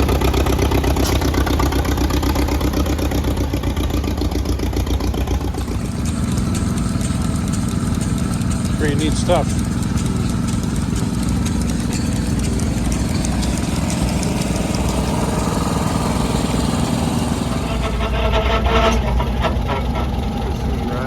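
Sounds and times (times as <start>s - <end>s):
engine running steadily: 0.0s - 21.0s.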